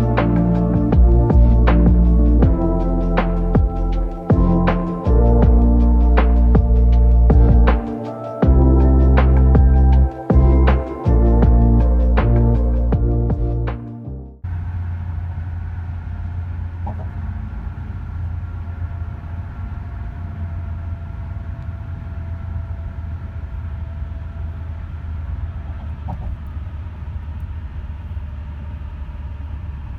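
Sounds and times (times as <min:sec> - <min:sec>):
low rumble of moving vehicle: 0:00.0 - 0:07.8, 0:14.4 - 0:29.9.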